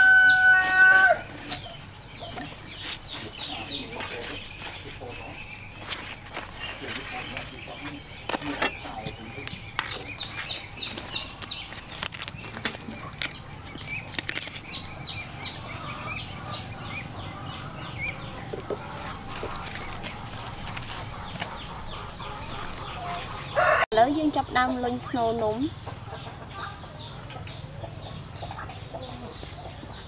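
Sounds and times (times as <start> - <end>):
bird chirping: 0.0 - 30.0
knife trimming banana leaves: 0.5 - 5.0, 5.7 - 16.0, 18.5 - 21.8.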